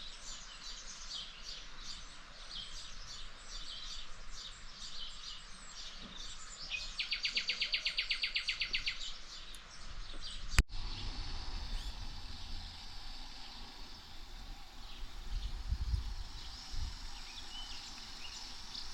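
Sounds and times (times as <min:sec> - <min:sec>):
nightingale singing: 0:00.0 - 0:09.8, 0:10.4 - 0:18.9
steady hiss and low rumble: 0:09.1 - 0:18.9.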